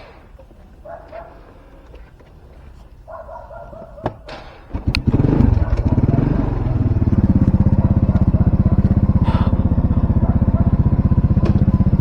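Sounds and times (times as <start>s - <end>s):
motorcycle engine starting and running: 4.3s - 12.0s.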